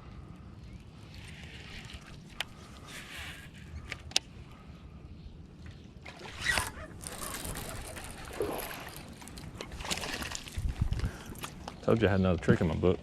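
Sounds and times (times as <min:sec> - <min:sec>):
water splashing against boat: 0:06.1 - 0:11.0.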